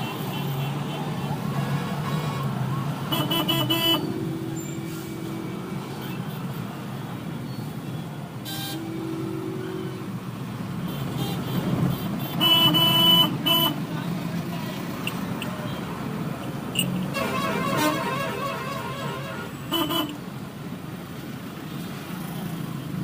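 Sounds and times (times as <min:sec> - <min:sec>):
road traffic: 0:00.0 - 0:23.0
car horn toots: 0:03.1 - 0:05.6, 0:10.9 - 0:13.8, 0:16.7 - 0:20.2
held horn-like tones: 0:08.5 - 0:10.1, 0:16.5 - 0:20.3.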